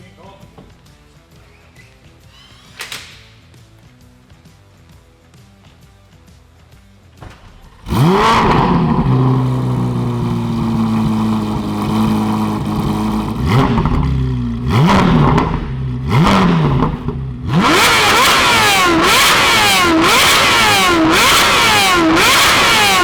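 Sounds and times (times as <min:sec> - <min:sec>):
car engine starting and idling: 0:02.4 - 0:03.8, 0:07.2 - 0:23.0
car engine revving: 0:07.5 - 0:23.0.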